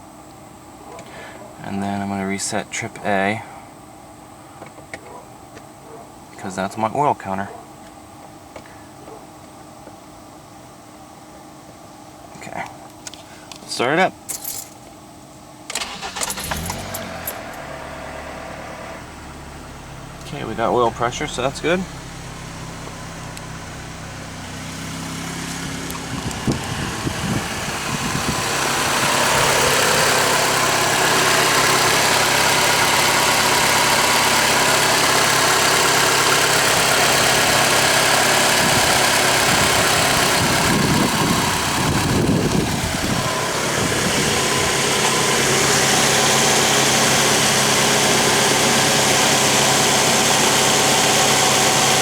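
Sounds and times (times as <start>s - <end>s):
car engine idling: 15.7s - 52.0s.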